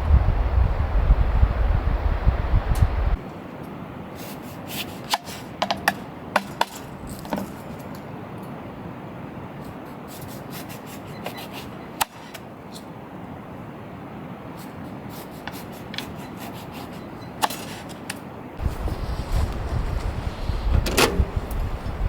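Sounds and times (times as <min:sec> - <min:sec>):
wind buffeting microphone: 0:00.0 - 0:03.2, 0:18.6 - 0:22.0
light knocks and clicks: 0:18.6 - 0:22.0
rubbing: 0:18.6 - 0:22.0.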